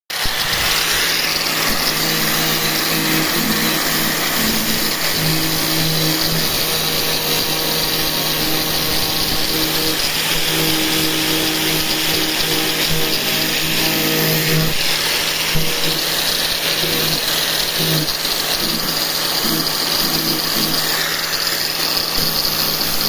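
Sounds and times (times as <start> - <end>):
power tool hissing: 0.1 - 23.0.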